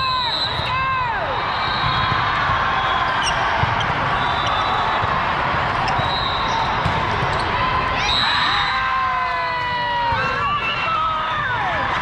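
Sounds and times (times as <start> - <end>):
hubbub of crowd and players: 0.0 - 12.0
volleyballs being hit and bouncing: 4.8 - 7.8.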